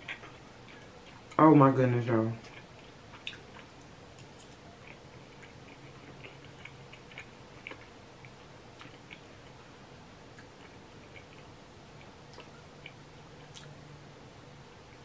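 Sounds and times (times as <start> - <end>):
person chewing food: 0.0 - 1.4, 2.4 - 9.6, 10.3 - 13.9.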